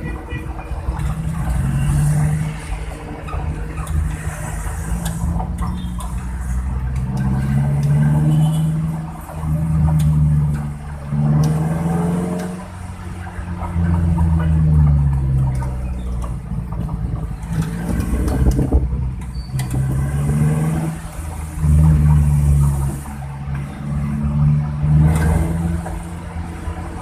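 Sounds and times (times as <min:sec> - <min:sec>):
engine with deep snoring exhaust: 0:13.5 - 0:27.0.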